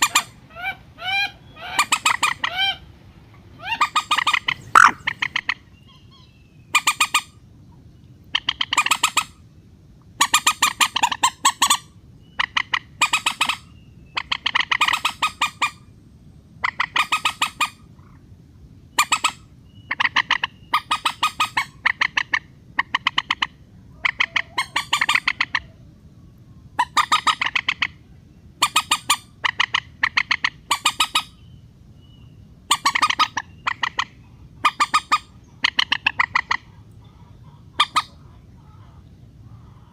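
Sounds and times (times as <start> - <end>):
moorhen chattering calls: 0.0 - 2.9, 3.6 - 7.3, 19.0 - 25.7, 26.8 - 28.0, 28.6 - 31.4, 32.7 - 39.9.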